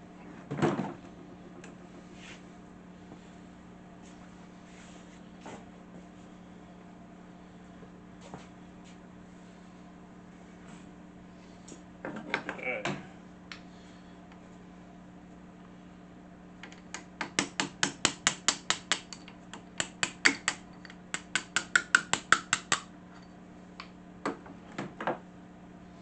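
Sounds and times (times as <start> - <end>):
steady low hum: 0.0 - 26.0
hammer tapping on metal: 16.9 - 22.9.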